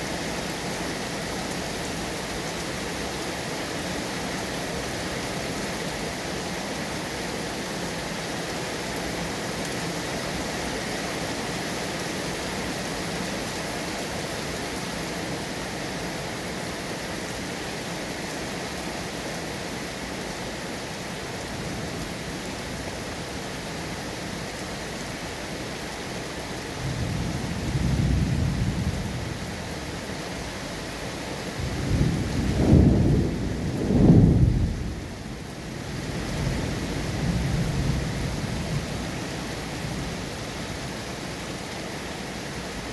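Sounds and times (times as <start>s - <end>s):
steady rain falling: 0.0s - 42.9s
thunder rumbling: 31.6s - 35.0s.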